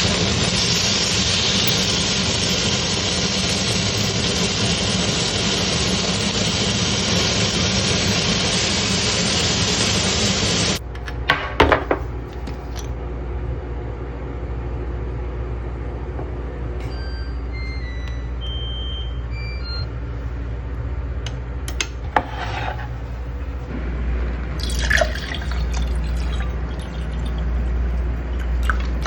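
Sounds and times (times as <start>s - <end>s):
steady low hum: 10.8s - 29.0s.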